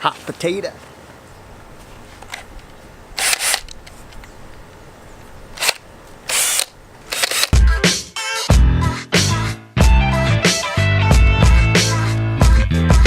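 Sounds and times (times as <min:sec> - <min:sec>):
power drill driving screws: 0:03.2 - 0:03.9, 0:05.5 - 0:07.6
music: 0:07.5 - 0:13.0.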